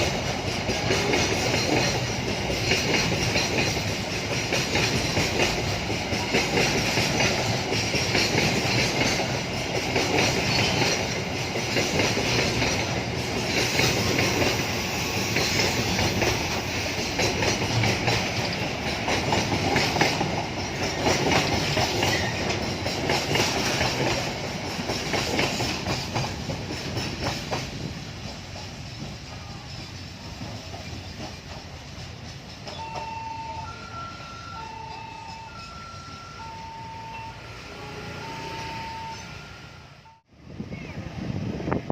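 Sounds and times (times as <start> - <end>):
train wheels clattering: 0.0 - 33.6.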